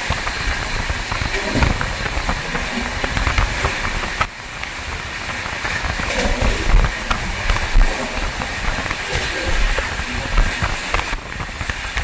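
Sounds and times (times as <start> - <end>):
train rumbling and rattling: 0.0 - 12.0
train wheels clicking and knocking: 0.0 - 12.0.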